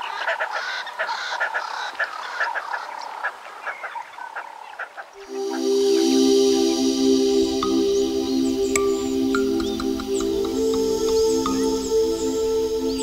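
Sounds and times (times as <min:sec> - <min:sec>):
frogs calling: 0:05.2 - 0:13.0
music: 0:05.2 - 0:13.0
steady trilling tone: 0:05.2 - 0:13.0.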